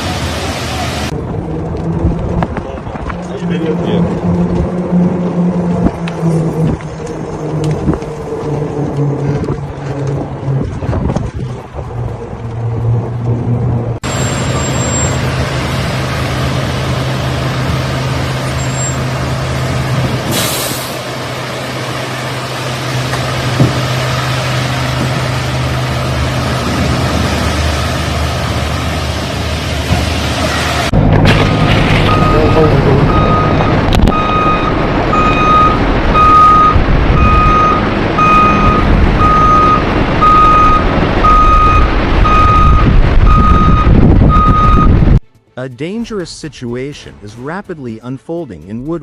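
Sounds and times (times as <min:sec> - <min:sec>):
heavy truck engine running: 0:00.0 - 0:45.2
air brakes hissing: 0:20.3 - 0:21.0.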